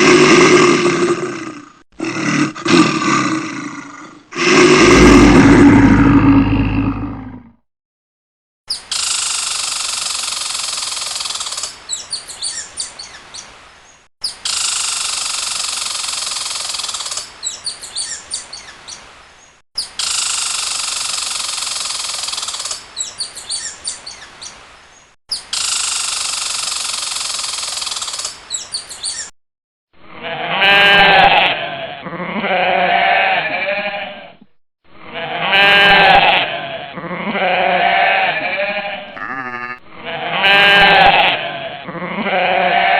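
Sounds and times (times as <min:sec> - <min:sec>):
goat bleating: 0:30.2 - 0:34.2, 0:35.2 - 0:42.9.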